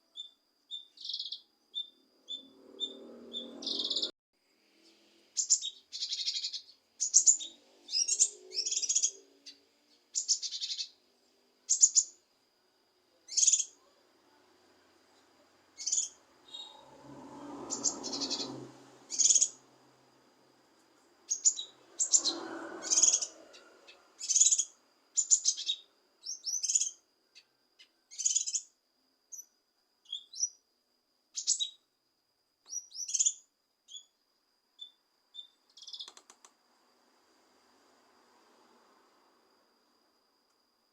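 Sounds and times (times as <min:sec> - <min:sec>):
bird chirping: 0:00.0 - 0:04.1, 0:04.8 - 0:11.0, 0:11.6 - 0:12.2, 0:13.2 - 0:13.9, 0:15.8 - 0:19.7, 0:21.2 - 0:30.6, 0:31.3 - 0:31.9, 0:32.6 - 0:34.2, 0:34.8 - 0:36.3
faint high whine: 0:00.0 - 0:40.9
low rough sound: 0:16.6 - 0:19.1.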